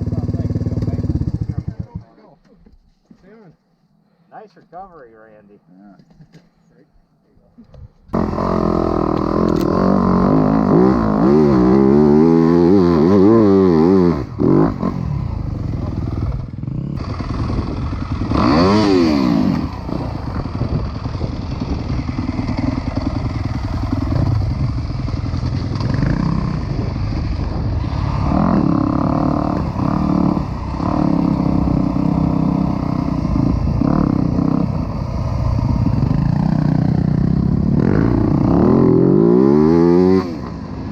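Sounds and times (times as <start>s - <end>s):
dirt bike engine revving: 0.0s - 2.0s, 8.1s - 40.9s
engine clatter: 0.0s - 2.1s, 14.9s - 27.7s.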